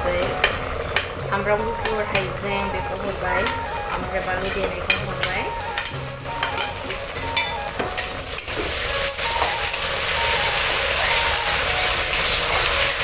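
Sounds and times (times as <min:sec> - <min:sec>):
pork sizzling in a wok: 0:04.6 - 0:13.0.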